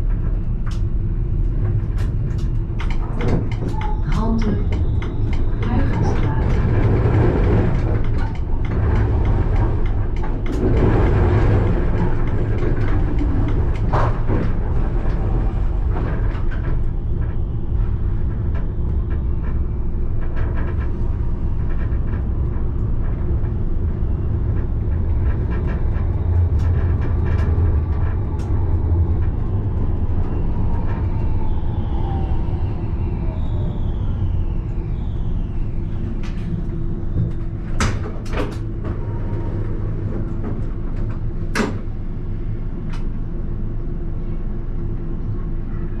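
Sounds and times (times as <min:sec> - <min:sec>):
tram rumbling on rails: 0:00.0 - 0:46.0
clicks and knocks over track: 0:00.1 - 0:17.4.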